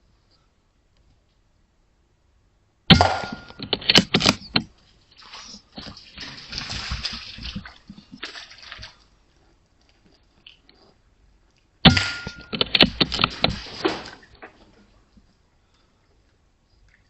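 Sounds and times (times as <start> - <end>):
air rifle shot: 2.9 - 4.0
sharp knocks: 2.9 - 4.6, 11.9 - 14.2
rough irregular noise: 3.3 - 15.4.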